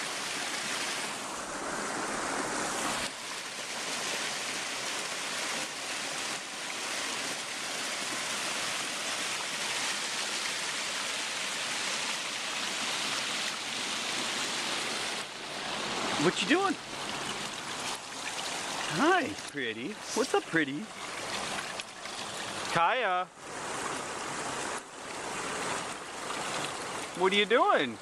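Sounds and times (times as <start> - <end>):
waterfall rushing: 0.0 - 27.5.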